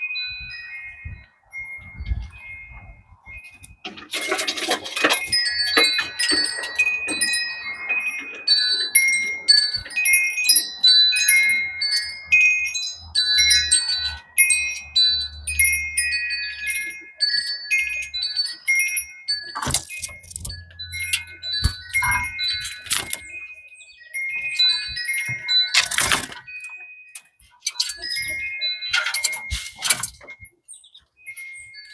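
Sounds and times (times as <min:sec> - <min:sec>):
metal wind chimes ringing: 0:00.0 - 0:31.9.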